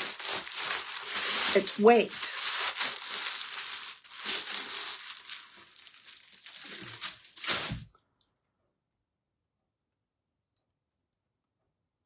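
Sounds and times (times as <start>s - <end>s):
packaging crinkling and tearing: 0.0s - 7.9s.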